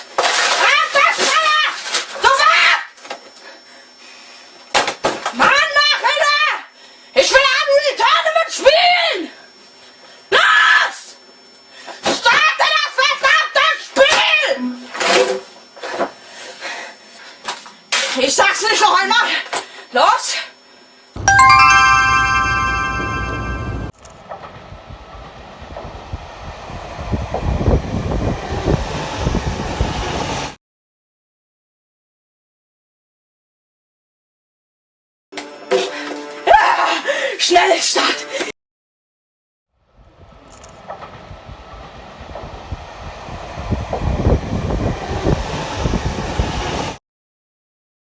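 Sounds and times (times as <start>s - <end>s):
train rumbling: 22.9s - 30.6s, 40.2s - 47.0s.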